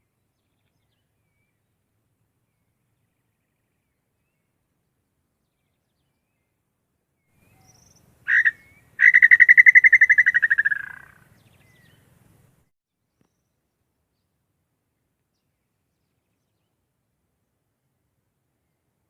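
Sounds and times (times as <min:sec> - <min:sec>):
bird whistled trill call: 0:07.4 - 0:12.0.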